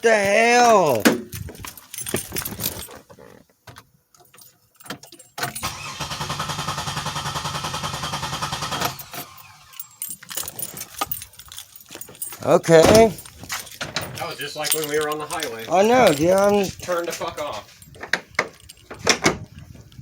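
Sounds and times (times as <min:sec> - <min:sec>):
keys jangling in ignition: 0:00.6 - 0:06.1, 0:08.7 - 0:20.0
engine cranking by starter: 0:05.4 - 0:11.0.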